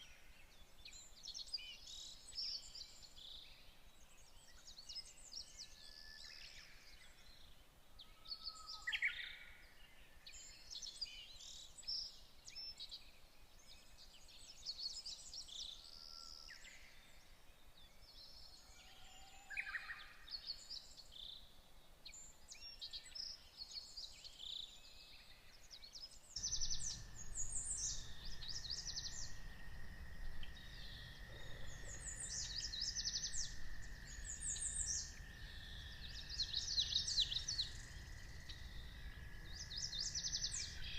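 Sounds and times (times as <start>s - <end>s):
birds chirping and trilling: 22.1s - 40.9s
low rumble: 26.4s - 40.9s.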